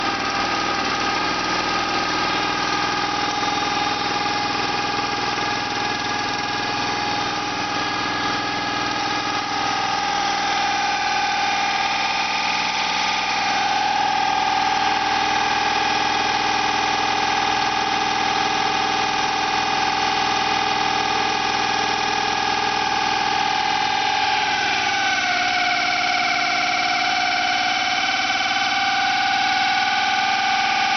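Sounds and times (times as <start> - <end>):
drilling rig engine whining: 0.0 - 30.9.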